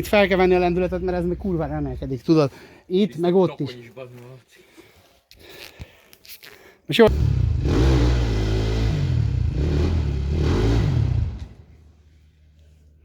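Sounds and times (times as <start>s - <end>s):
motorcycle engine revving: 7.1s - 11.9s.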